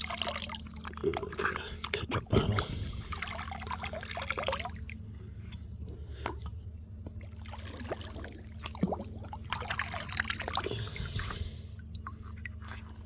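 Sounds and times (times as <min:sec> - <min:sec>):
small drips and splashes: 0:00.0 - 0:02.0, 0:02.6 - 0:05.6, 0:06.2 - 0:13.0
creek water trickling: 0:03.0 - 0:05.4, 0:06.6 - 0:13.0.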